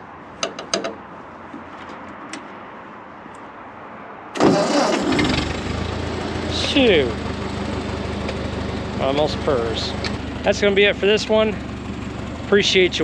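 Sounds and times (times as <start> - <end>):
tractor engine starting and running: 4.4 - 13.0.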